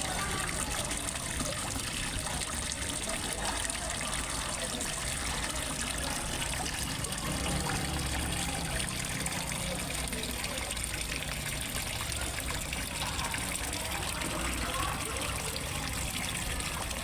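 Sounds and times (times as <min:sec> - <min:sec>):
water trickling into a pond: 0:00.0 - 0:17.0.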